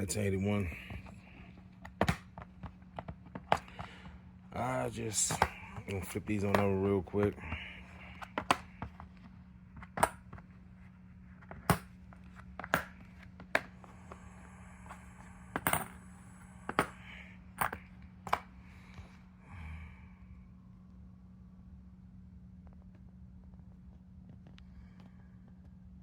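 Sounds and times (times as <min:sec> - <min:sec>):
steady low hum: 0:00.0 - 0:26.0
coins clicking on hard surface: 0:15.5 - 0:16.0.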